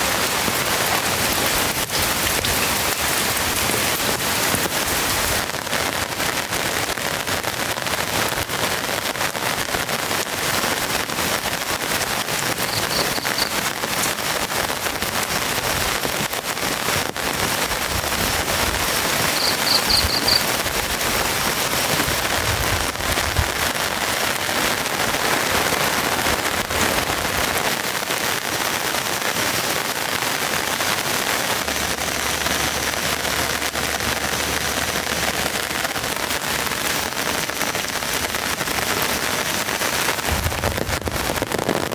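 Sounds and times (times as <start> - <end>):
heavy rain: 0.0 - 41.9
high chirps: 12.6 - 13.6, 19.3 - 20.5.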